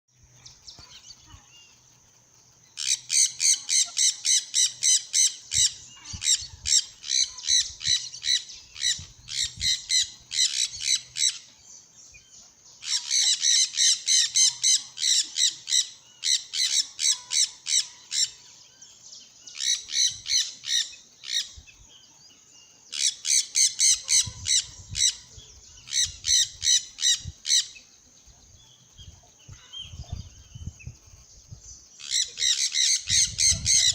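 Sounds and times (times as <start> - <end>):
birds squawking: 2.8 - 11.5, 12.8 - 18.5, 22.9 - 27.8, 32.0 - 33.9.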